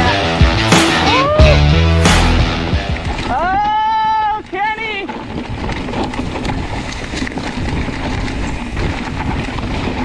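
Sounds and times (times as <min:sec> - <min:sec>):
tyres rumbling on dirt trail: 0:01.7 - 0:10.0
wind buffeting microphone: 0:02.7 - 0:10.0
bike clicking and rattling: 0:03.0 - 0:10.0.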